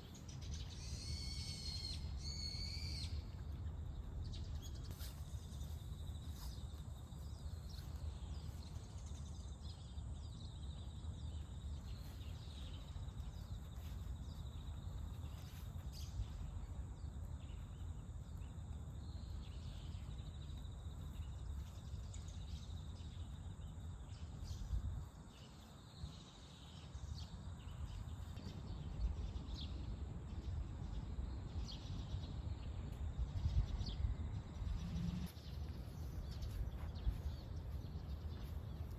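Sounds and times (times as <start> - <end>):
small birds chirping: 0.0 - 38.9
steady low rumble: 27.8 - 38.9.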